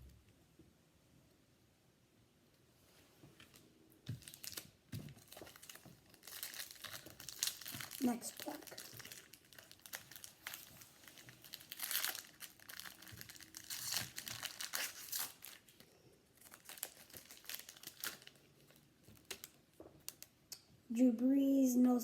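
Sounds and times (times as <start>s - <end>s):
wrapper crinkling and tearing: 3.5s - 20.4s.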